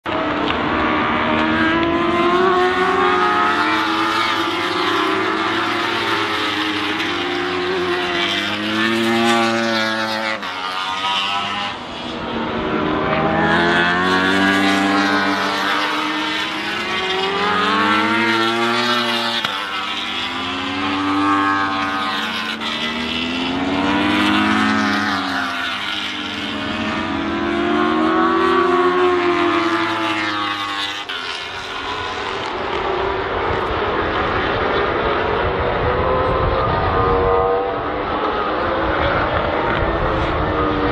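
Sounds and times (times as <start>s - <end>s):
motorbikes racing past: 0.0s - 40.9s.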